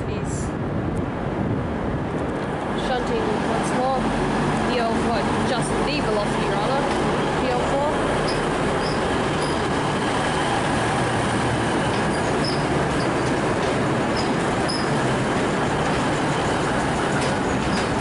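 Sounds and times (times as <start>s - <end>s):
diesel engine drone: 0.5s - 18.0s
wheel-on-rail noise: 1.1s - 18.0s
wheels squeaking: 6.8s - 18.0s.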